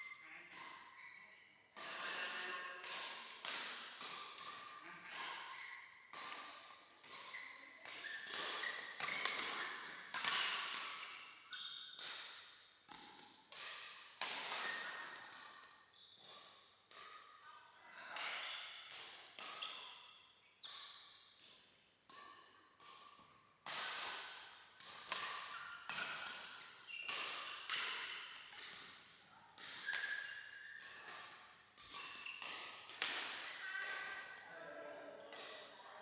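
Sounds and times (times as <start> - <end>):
court shoes squeaking: 0.0 - 2.5, 3.6 - 13.3, 14.4 - 17.4, 18.3 - 21.6, 25.1 - 34.4
rackets hitting shuttlecock: 1.8 - 17.4, 18.2 - 34.4.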